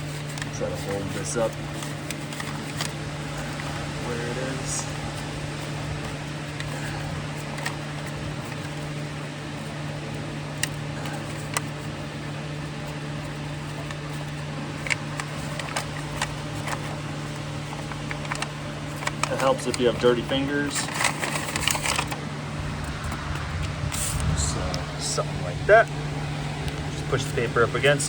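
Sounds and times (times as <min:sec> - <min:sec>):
paper rustling: 0:00.0 - 0:22.2
shop background hum: 0:00.0 - 0:28.0.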